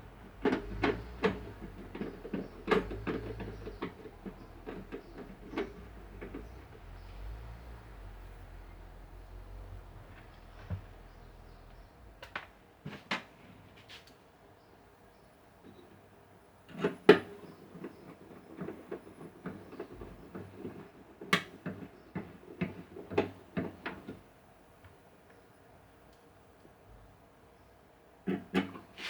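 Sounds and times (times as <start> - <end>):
tools clicking and knocking: 0.2 - 6.8.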